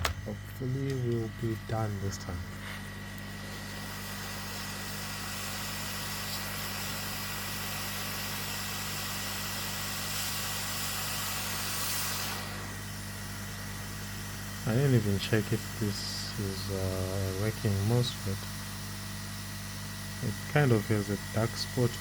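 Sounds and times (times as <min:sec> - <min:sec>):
low electrical hum: 0:00.0 - 0:07.3
hot air blower hissing: 0:00.0 - 0:22.0.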